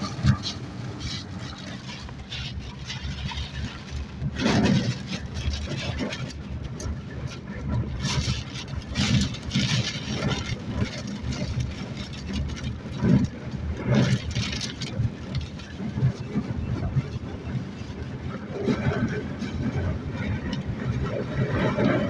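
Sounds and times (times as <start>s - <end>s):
rain: 0.0s - 22.0s
wind buffeting microphone: 0.0s - 22.0s.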